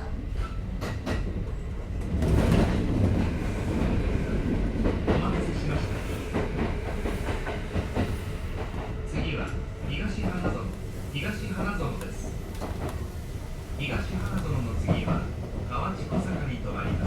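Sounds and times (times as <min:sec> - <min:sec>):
train wheels rumbling on rail: 0:00.0 - 0:17.0
clacks over rail joints: 0:14.2 - 0:17.0.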